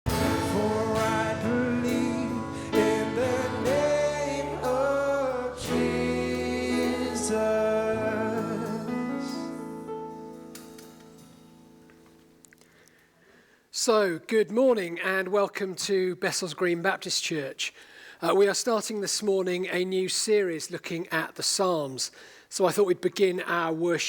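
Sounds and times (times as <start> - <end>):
person singing: 0.1 - 10.3
sustained instrumental chords: 0.1 - 12.0.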